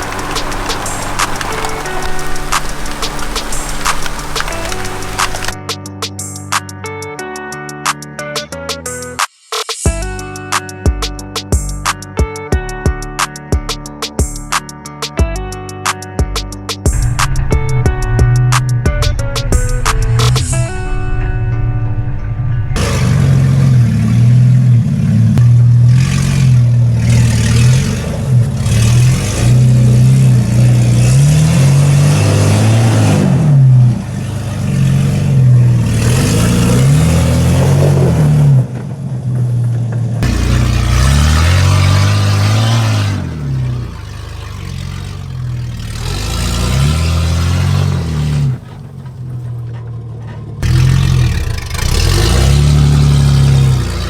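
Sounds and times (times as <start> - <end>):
unmuffled engine revving: 0.0 - 5.6, 16.9 - 54.0.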